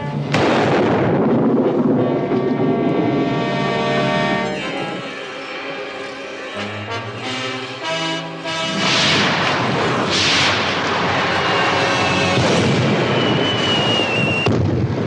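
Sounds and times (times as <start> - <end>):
orchestral brass music: 0.0 - 0.6, 1.2 - 12.8
long rolling rumble: 0.0 - 15.0
loud booms with rushing hiss: 0.3 - 2.0, 8.5 - 15.0.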